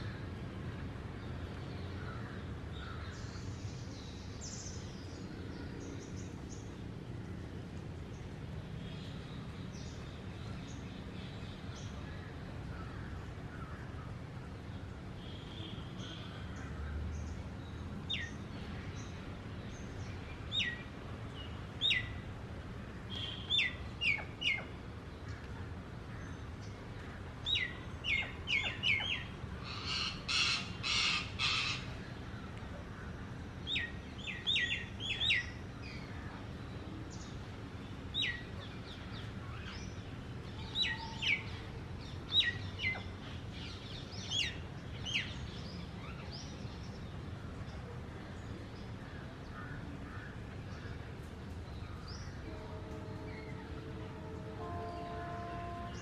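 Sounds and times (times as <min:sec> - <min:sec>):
birds chirping: 0:23.1 - 0:25.5, 0:26.1 - 0:32.6.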